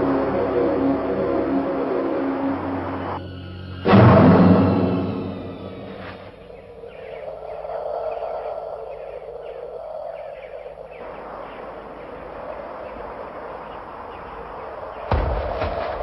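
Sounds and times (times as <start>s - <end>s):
bird chirping: 4.6s - 15.3s.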